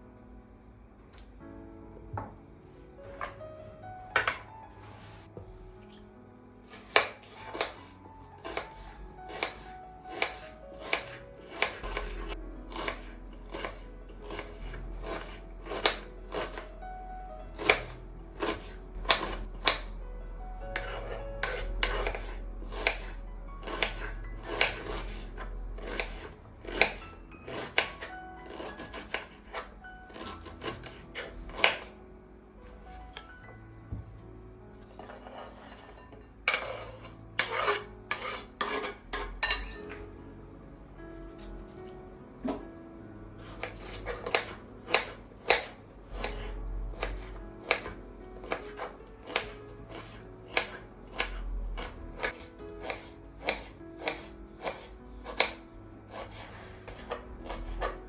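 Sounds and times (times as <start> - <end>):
soft background music: 0.0 - 58.0
knife chopping on cutting board: 6.7 - 16.7, 17.6 - 19.9, 20.8 - 31.9, 35.0 - 40.0, 43.4 - 58.0.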